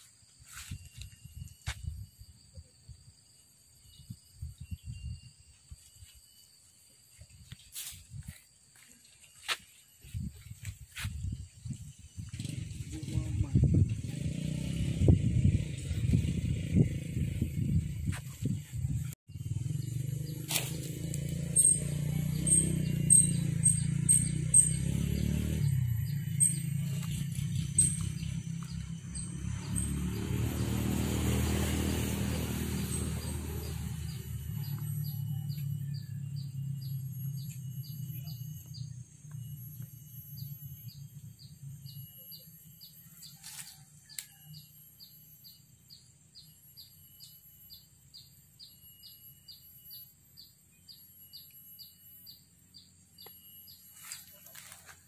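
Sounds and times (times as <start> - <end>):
bird chirping high: 21.5 - 30.8.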